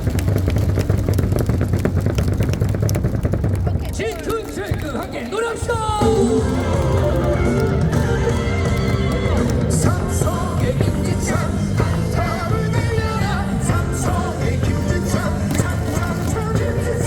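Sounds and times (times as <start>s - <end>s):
crowd singing a cheer song: 5.4s - 17.0s
loud music over speakers: 5.9s - 17.0s.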